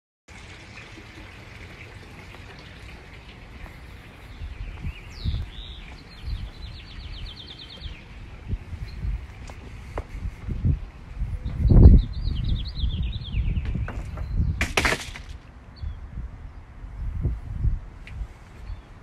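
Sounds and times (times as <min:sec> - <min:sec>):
outdoor background hiss: 0:00.3 - 0:19.0
small bird chirp and trill: 0:03.9 - 0:10.2, 0:11.2 - 0:14.6, 0:15.7 - 0:16.6, 0:18.6 - 0:19.0.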